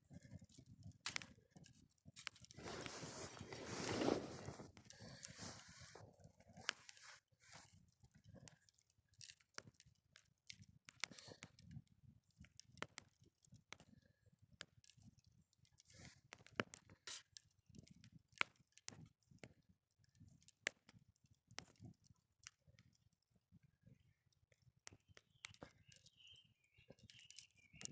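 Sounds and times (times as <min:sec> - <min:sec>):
campfire pops and snaps: 0:00.2 - 0:05.7, 0:08.4 - 0:13.9, 0:15.7 - 0:19.5, 0:24.8 - 0:26.3, 0:26.9 - 0:27.9.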